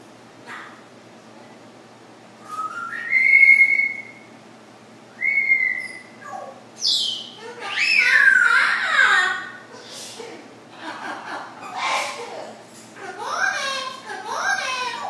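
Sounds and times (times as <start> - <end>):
parrot whistling: 2.4 - 4.3, 5.1 - 8.9.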